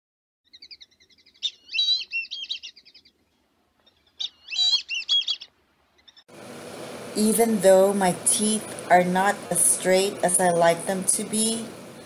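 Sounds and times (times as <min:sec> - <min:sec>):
songbird singing: 0:00.5 - 0:06.3.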